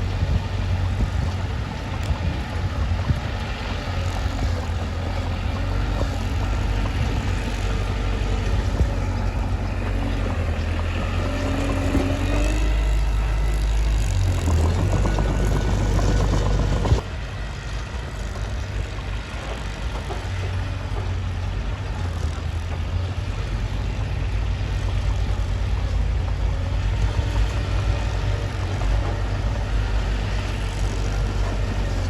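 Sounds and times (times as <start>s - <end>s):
bulldozer diesel engine rumbling: 0.0s - 32.0s.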